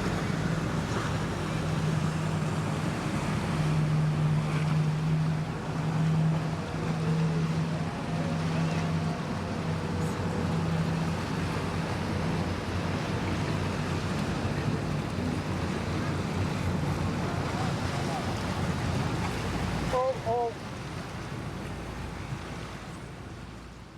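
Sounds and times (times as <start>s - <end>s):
boat engine droning: 0.0s - 23.9s
waves: 0.0s - 23.9s.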